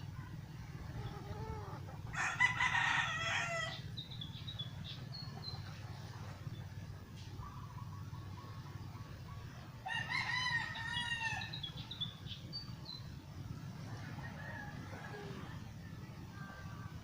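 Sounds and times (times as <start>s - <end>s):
steady low hum: 0.0s - 17.0s
rooster crowing: 1.4s - 3.8s, 9.8s - 11.6s.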